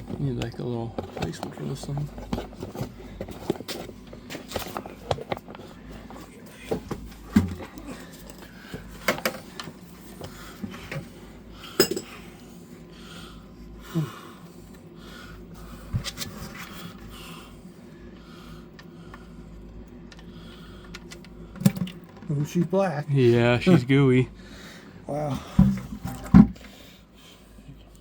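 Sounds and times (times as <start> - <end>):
metallic clinks of hand tools: 11.8 - 12.1.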